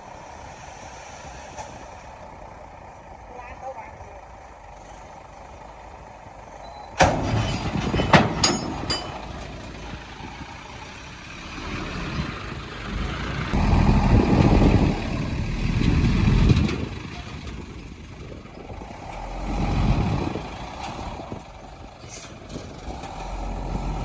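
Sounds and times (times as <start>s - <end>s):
heavy machinery engine noise: 0.0s - 24.0s
sharp metallic clanks: 6.6s - 9.8s.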